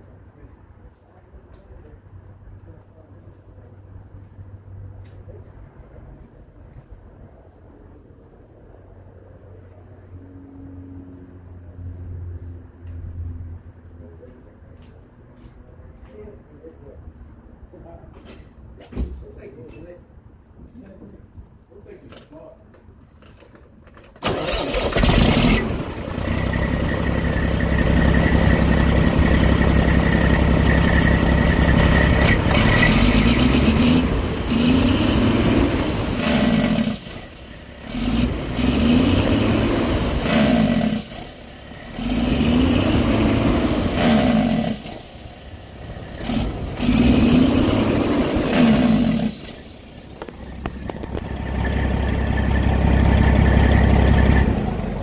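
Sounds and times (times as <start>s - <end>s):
diesel engine starting: 24.0s - 55.0s
diesel engine idling: 24.2s - 55.0s
diesel engine revving: 24.2s - 55.0s.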